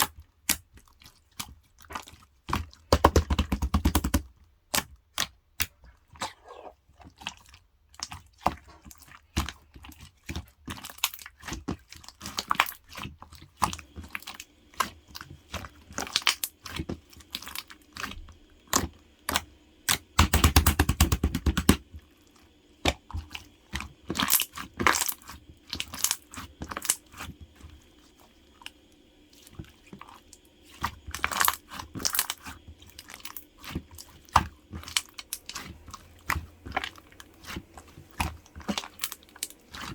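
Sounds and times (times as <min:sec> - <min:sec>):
crunching and chewing snack: 0:23.0 - 0:39.9.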